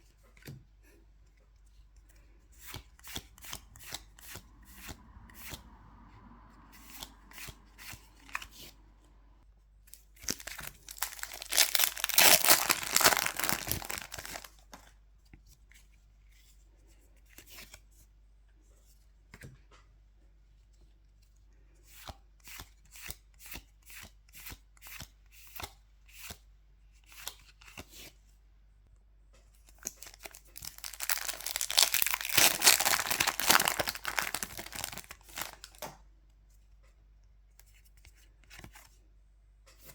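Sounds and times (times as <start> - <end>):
foil wrappers tearing and crinkling: 10.2 - 14.8, 30.0 - 35.8.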